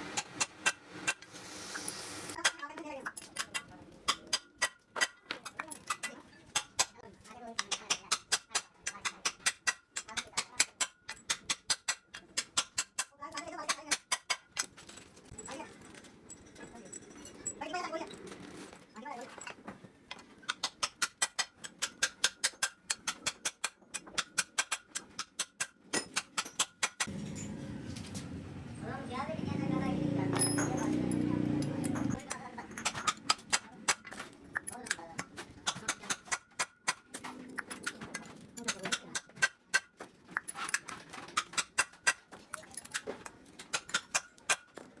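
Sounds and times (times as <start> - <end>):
metal tools knocking together: 30.3 - 36.3, 37.0 - 45.0.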